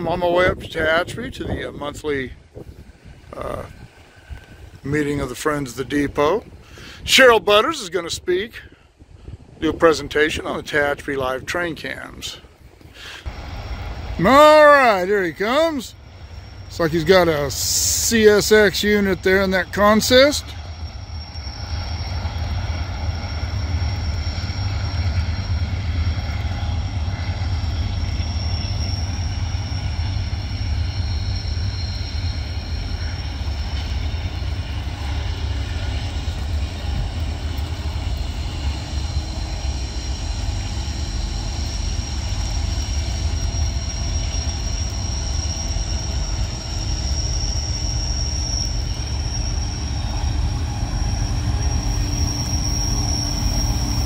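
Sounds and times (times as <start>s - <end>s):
freight train rumbling past: 0.0s - 54.0s
high-pitched wheel squeal: 13.3s - 54.0s.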